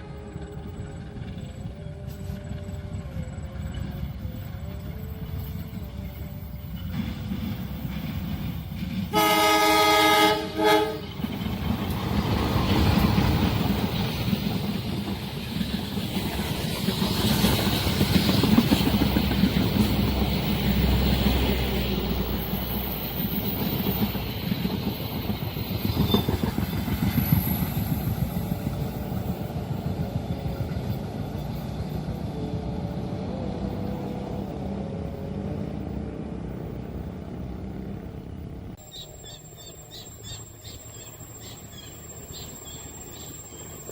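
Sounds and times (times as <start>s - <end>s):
train horn: 0.0s - 3.0s, 9.1s - 11.2s
train wheels rumbling on rails: 0.0s - 43.9s.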